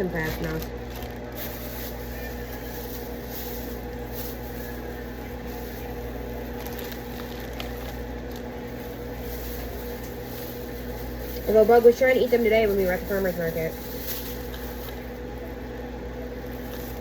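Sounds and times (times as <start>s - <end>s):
appliance humming: 0.0s - 17.0s
faint clicks and rustles of handling: 0.0s - 17.0s.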